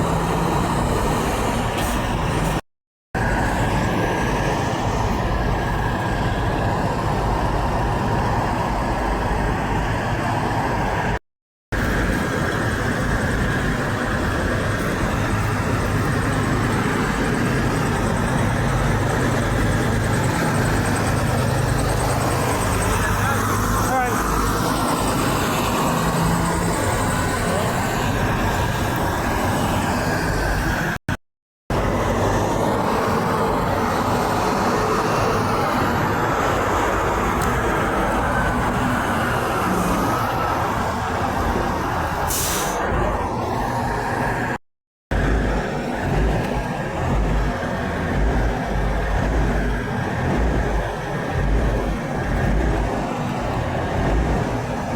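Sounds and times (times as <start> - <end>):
road noise: 0.0 - 2.6, 3.2 - 54.9
trucks rolling past: 0.0 - 2.6, 3.2 - 11.2, 11.8 - 31.0, 31.7 - 54.9
truck engine idling: 45.1 - 54.9.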